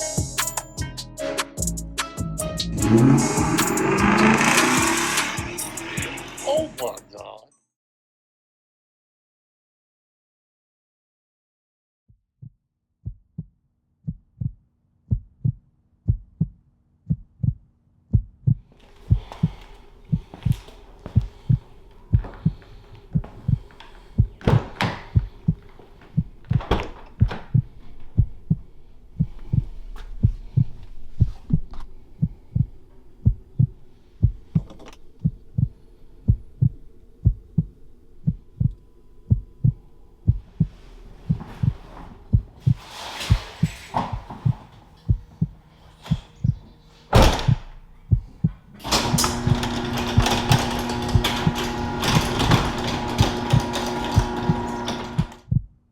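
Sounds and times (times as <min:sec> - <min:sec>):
heartbeat-like low thump: 0:12.4 - 0:48.7, 0:55.5 - 0:55.9
low rumble and hum: 0:15.1 - 0:42.8.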